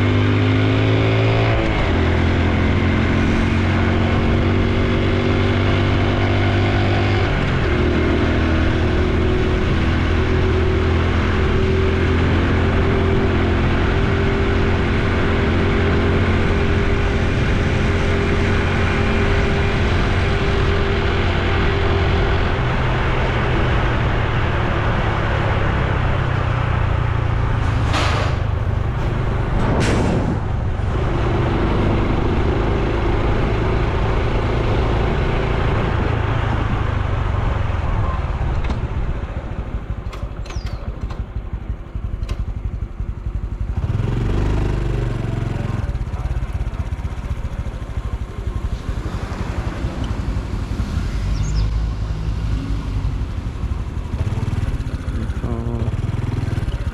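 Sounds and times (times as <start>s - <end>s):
motorcycle engine running: 0.0s - 27.6s, 28.2s - 56.9s
road and wind noise: 0.0s - 56.9s.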